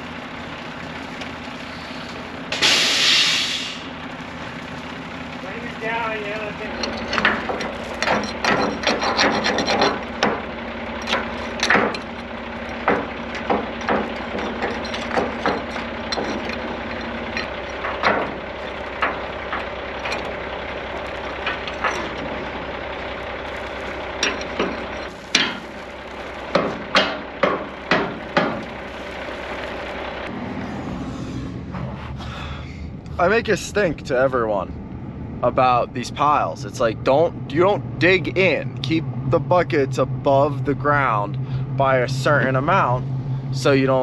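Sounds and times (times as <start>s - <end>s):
engine idling: 0.0s - 44.0s
steady hum: 1.5s - 44.0s
sharp knocks and clanks: 6.0s - 30.3s.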